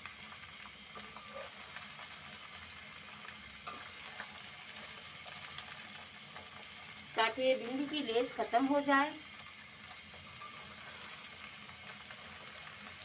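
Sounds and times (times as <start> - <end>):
okra sizzling in hot oil: 0.0 - 13.0
metal skimmer scraping pot: 1.0 - 1.6.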